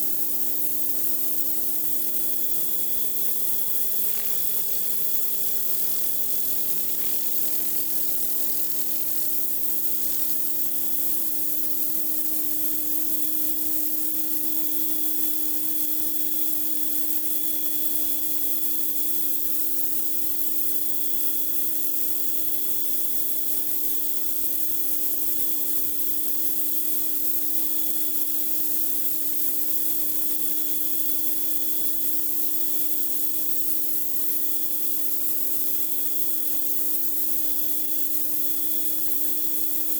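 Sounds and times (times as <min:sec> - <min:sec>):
high-pressure water spray hiss: 0:00.4 - 0:39.9.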